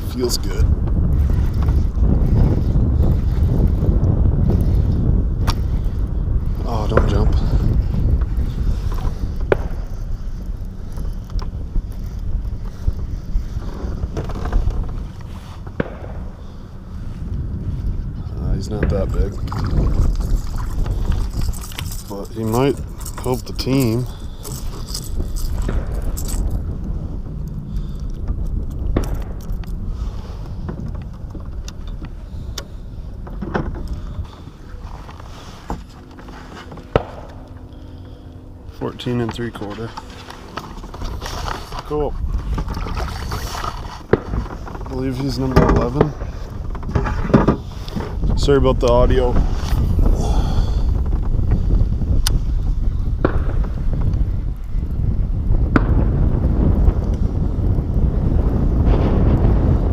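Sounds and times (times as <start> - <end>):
wind buffeting microphone: 0.0 - 59.9
clicks and knocks from handling gear: 19.5 - 26.6, 39.0 - 48.2.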